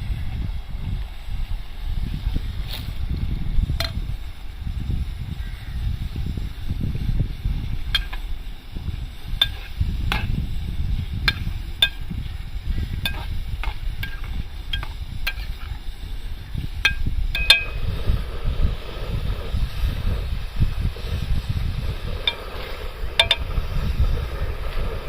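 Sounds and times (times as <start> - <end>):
steady low rumble: 0.0 - 25.0
metal spoon clinking on a pot: 11.3 - 12.0, 13.0 - 13.3, 14.0 - 15.5, 16.8 - 17.8, 23.2 - 23.5.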